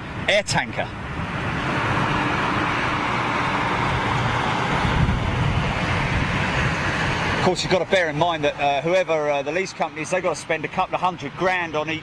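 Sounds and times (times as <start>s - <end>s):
jet engine roar: 0.8s - 8.6s.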